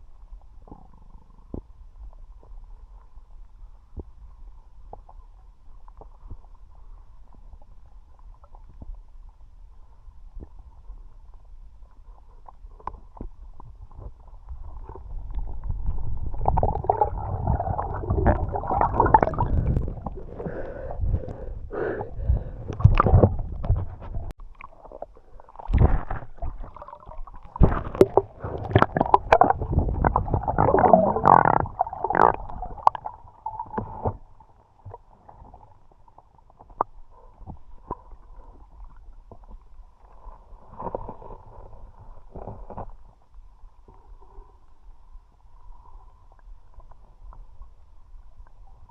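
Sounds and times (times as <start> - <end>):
muffled underwater water rushing: 0.0 - 48.9
knocks underwater: 22.7 - 24.4, 25.6 - 34.2.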